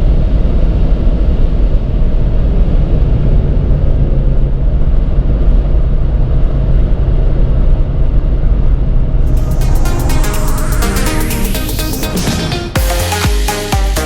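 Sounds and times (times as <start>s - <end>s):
car engine low drone: 9.0s - 12.9s.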